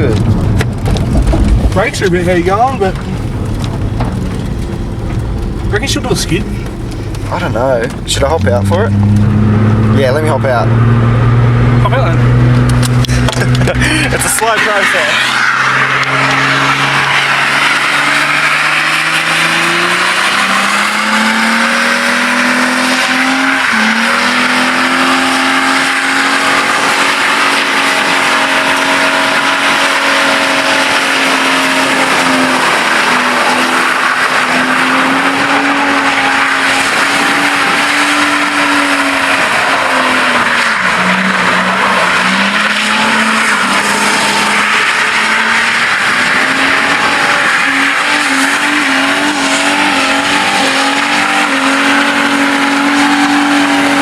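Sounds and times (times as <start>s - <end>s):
car engine revving: 0.0s - 54.0s
tyres spinning and squealing: 14.0s - 54.0s.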